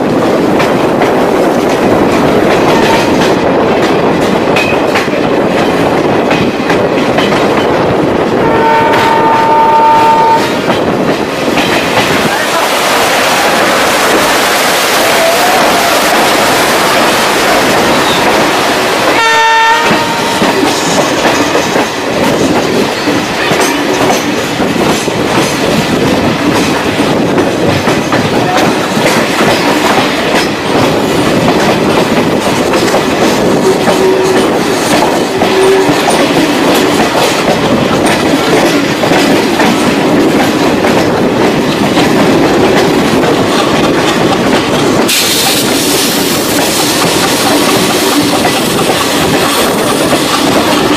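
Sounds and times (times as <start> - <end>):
train wheels clattering over rails: 0.0 - 50.9
train horn blast: 8.4 - 10.7, 19.1 - 20.6, 35.4 - 36.0.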